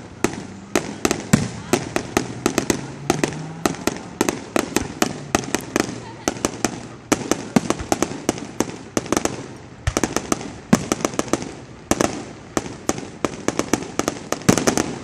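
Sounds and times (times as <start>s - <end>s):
fireworks cracking and banging: 0.0s - 15.0s.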